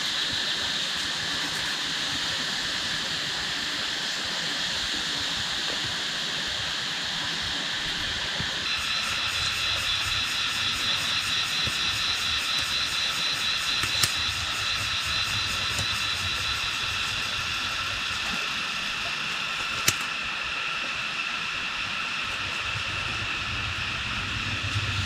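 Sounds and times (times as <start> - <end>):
high-pitched pulsing buzz: 0.0 - 25.0
sharp clicks: 13.6 - 16.0, 19.7 - 20.2.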